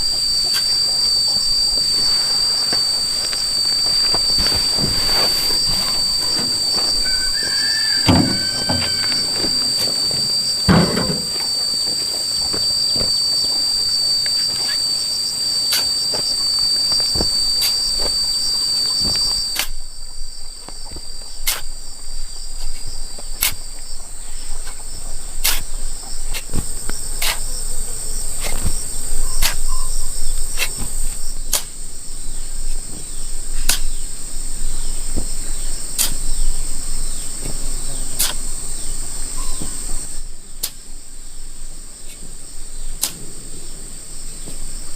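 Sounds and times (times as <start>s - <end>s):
insects trilling: 0.0s - 44.9s
sharp knocks: 6.0s - 11.6s.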